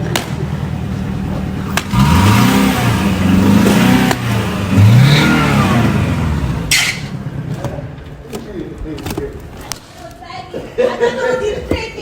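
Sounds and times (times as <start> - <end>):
car engine revving: 0.0 - 7.4.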